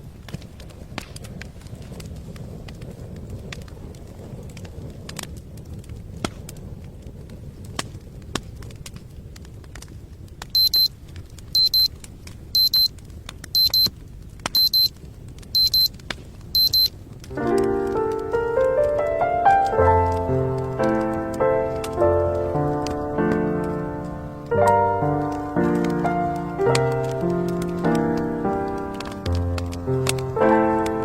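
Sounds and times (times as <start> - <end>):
electronic alarm double beep: 10.6 - 10.9, 11.6 - 11.9, 12.6 - 12.9, 13.6 - 13.9, 14.6 - 14.9, 15.6 - 15.9, 16.6 - 16.9.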